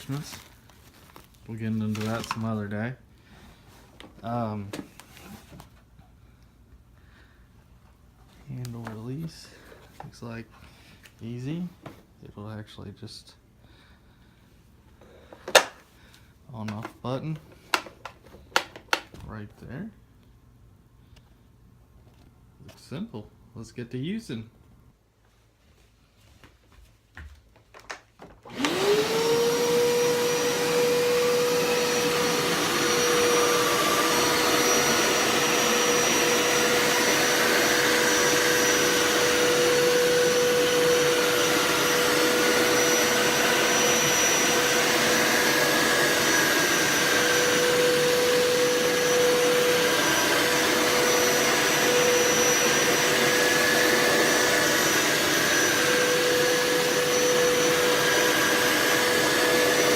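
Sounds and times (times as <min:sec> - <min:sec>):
carpet cleaner motor whining: 0:28.4 - 0:59.9.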